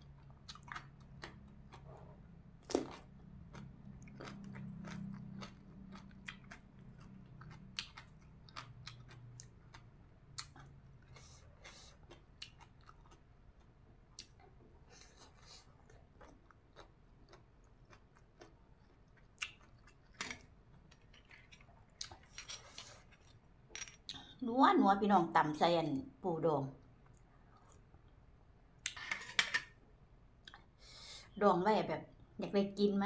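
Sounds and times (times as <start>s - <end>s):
chewing and biting: 0.0s - 23.4s.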